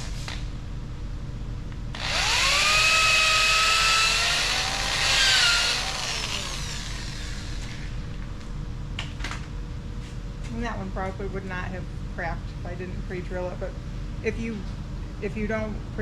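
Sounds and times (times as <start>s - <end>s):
power drill whining: 2.0s - 7.8s.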